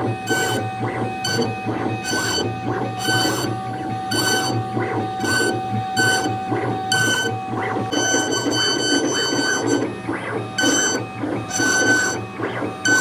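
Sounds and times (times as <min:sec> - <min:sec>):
router motor hum and cutting: 0:00.0 - 0:13.0
stepper motors whine: 0:00.0 - 0:13.0.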